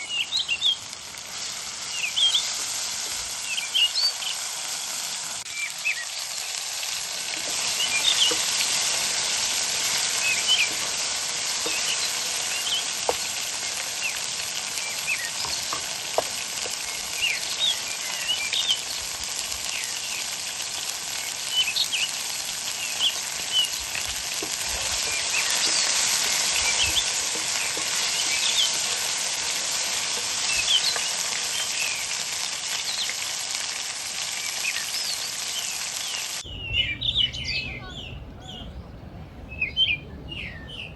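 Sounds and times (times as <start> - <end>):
bird chirps: 0.0 - 0.8, 1.9 - 2.5, 7.6 - 8.6, 9.8 - 10.8, 11.6 - 15.8, 25.1 - 28.8, 34.4 - 40.9
food sizzling in a pan: 0.0 - 36.4.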